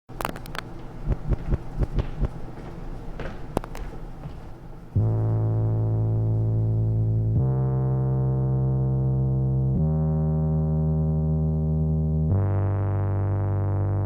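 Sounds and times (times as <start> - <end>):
sustained synthesizer chords: 4.9 - 14.0.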